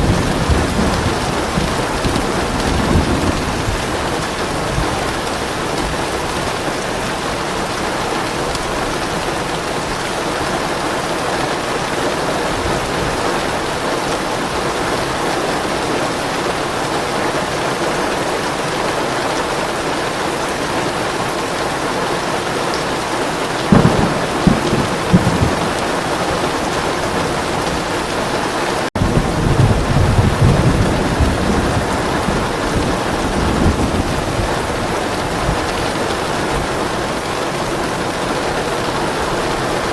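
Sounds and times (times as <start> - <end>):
low rolling thunder: 0.0 - 10.8, 23.6 - 39.2
heavy rain: 0.0 - 39.9.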